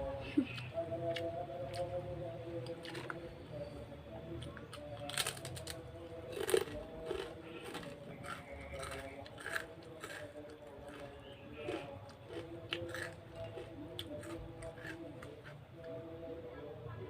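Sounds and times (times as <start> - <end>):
soft background music: 0.0 - 17.0
person chewing crunchy food: 0.5 - 2.0, 2.6 - 3.2, 4.4 - 15.6.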